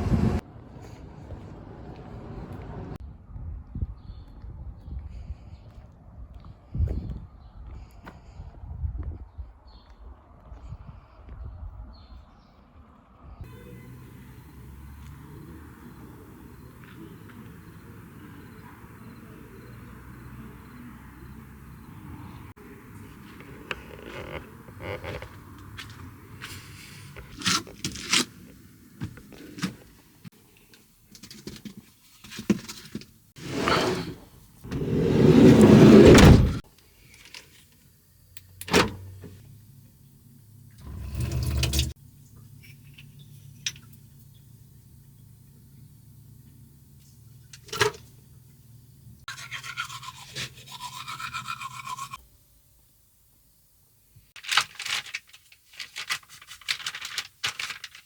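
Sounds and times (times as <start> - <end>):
handling rustling and scraping: 23.0 - 37.8, 54.4 - 58.0.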